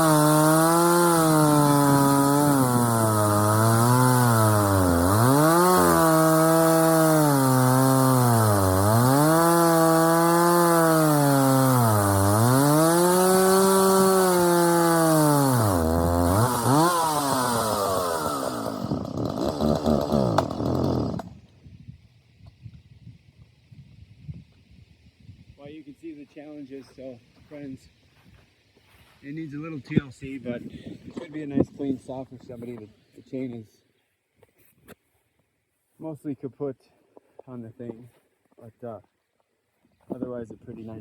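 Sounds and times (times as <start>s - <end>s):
chainsaw cutting wood: 0.0s - 21.6s.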